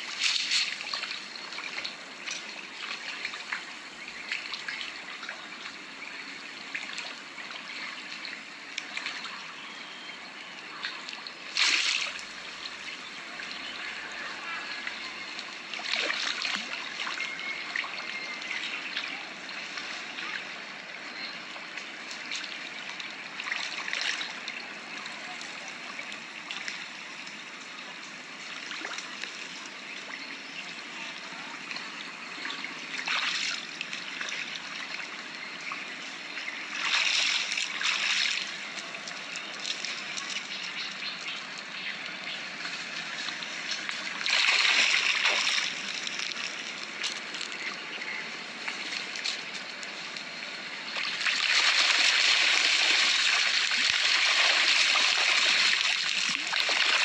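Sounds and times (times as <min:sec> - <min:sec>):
water splashes: 0:00.0 - 0:57.0
water trickling and flowing: 0:00.0 - 0:57.0.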